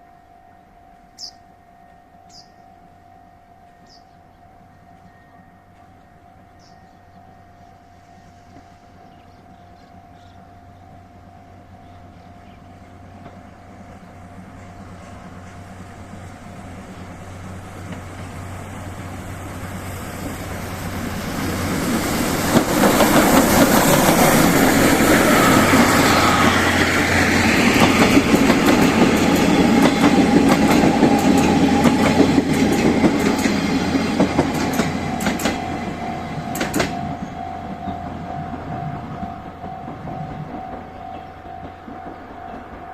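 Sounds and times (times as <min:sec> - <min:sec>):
steam train passing: 0:03.8 - 0:42.9
wheels clicking over rail joints: 0:13.1 - 0:42.9.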